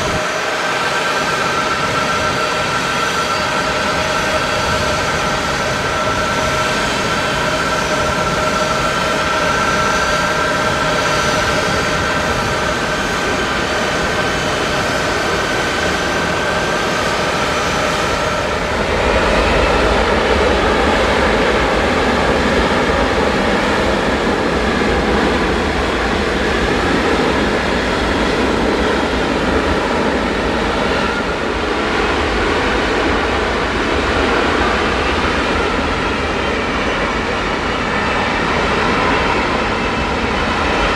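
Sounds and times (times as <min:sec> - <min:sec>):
jet engines whining: 0:00.0 - 0:40.9.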